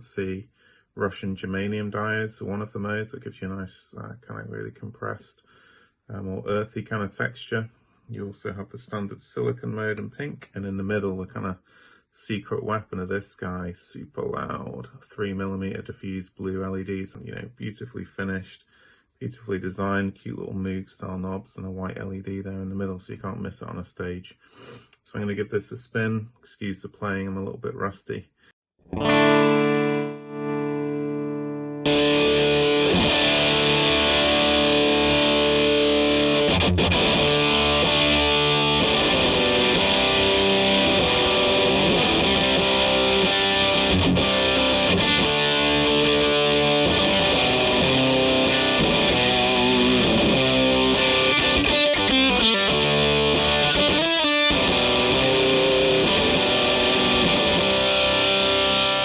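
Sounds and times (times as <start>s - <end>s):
fuzz-distorted electric guitar: 28.9s - 59.0s.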